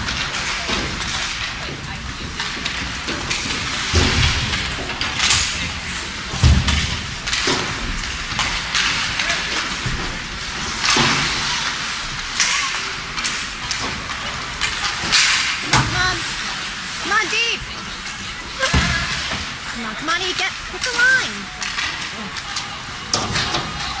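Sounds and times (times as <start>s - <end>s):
rink background noise: 0.0s - 24.0s
sharp clacks of hockey sticks: 0.0s - 24.0s.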